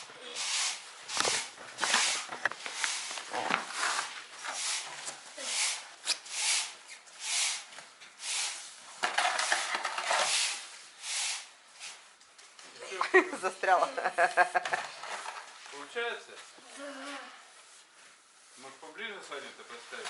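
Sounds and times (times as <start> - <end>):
broom sweeping: 0.0 - 12.2, 17.5 - 20.0.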